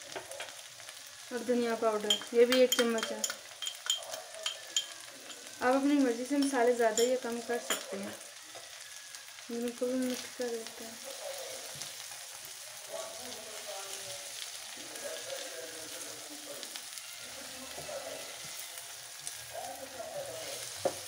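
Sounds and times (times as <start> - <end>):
food sizzling in a pan: 0.0 - 21.0
spatula stirring: 2.0 - 8.8.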